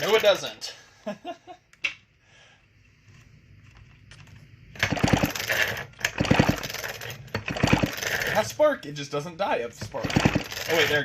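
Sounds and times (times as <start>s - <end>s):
chainsaw pull-cord starter rattle: 4.8s - 8.5s, 9.8s - 11.0s.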